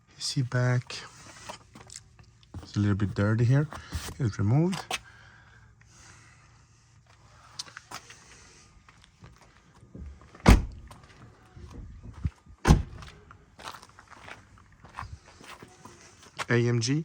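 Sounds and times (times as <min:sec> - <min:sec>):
heavy deep thumps: 0:10.0 - 0:11.0, 0:11.7 - 0:13.2.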